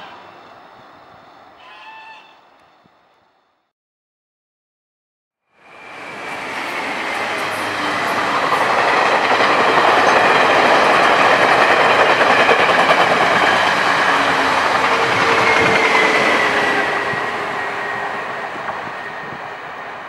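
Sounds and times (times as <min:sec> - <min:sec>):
train wheels rushing on rail: 0:05.6 - 0:20.0.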